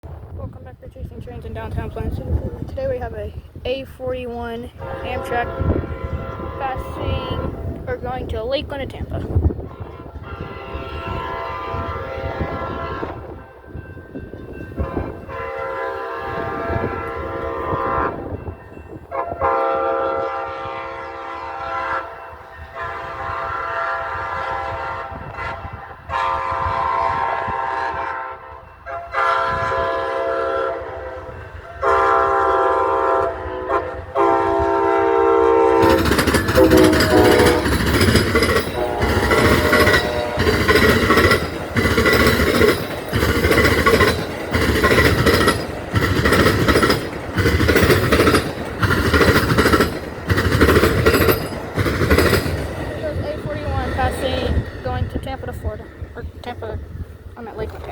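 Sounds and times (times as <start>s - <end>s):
train engine and wheels rumbling: 0.0s - 57.9s
locomotive horn blasts: 4.8s - 7.9s, 9.4s - 13.8s, 14.6s - 41.4s.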